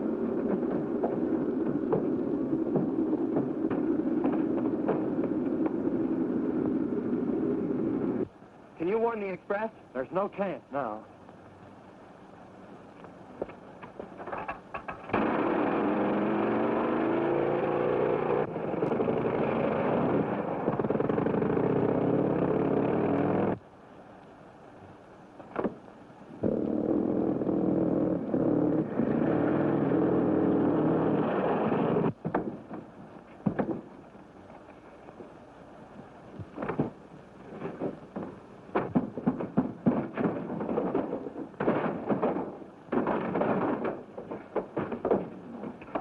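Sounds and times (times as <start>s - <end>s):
vehicle engine running loudly: 15.1s - 23.6s
sharp knocks: 37.6s - 46.0s.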